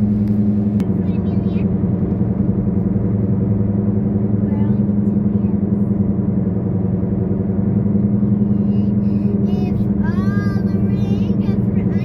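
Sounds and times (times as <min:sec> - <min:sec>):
car engine drone: 0:00.0 - 0:12.0
road noise: 0:00.0 - 0:12.0
child's voice: 0:01.0 - 0:01.7, 0:08.4 - 0:12.0.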